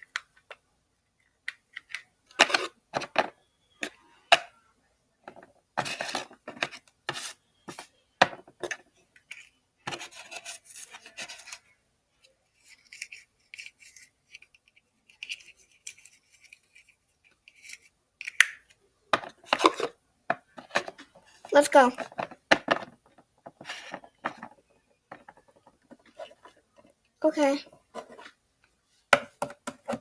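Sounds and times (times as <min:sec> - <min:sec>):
plastic toys clicking and knocking: 0:00.0 - 0:04.5, 0:12.7 - 0:27.8, 0:29.2 - 0:30.0
plastic toys scraping and rubbing: 0:05.3 - 0:11.7, 0:12.3 - 0:18.0, 0:19.2 - 0:28.4.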